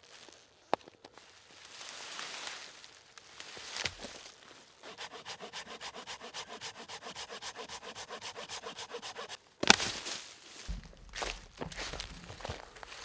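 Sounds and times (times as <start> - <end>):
rapid scraping strokes: 4.8 - 9.4.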